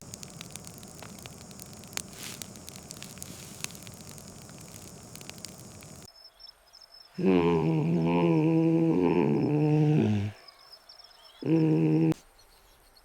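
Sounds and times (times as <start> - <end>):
crackles and pops: 0.0 - 6.1
steady hiss: 0.0 - 6.1.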